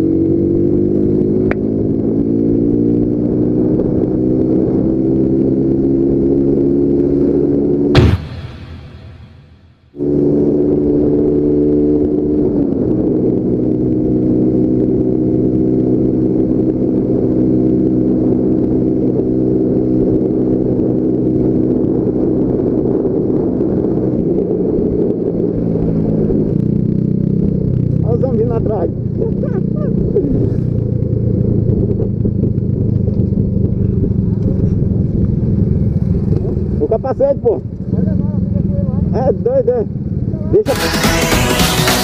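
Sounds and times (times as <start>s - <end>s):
motorcycle engine running: 9.2s - 42.0s.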